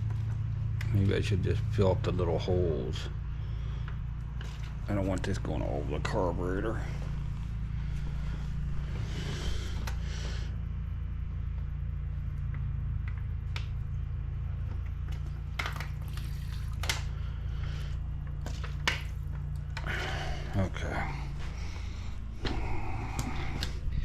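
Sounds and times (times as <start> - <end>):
steady low hum: 0.0 - 24.0
liquid pouring from bottle: 15.6 - 17.1.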